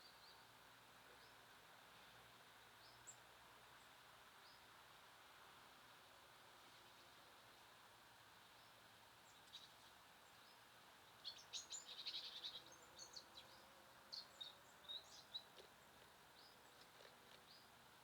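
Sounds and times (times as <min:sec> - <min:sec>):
small songbirds chirping: 0:00.0 - 0:00.5, 0:01.1 - 0:01.5, 0:02.8 - 0:04.7, 0:08.5 - 0:17.8
steady background hiss: 0:00.0 - 0:18.0.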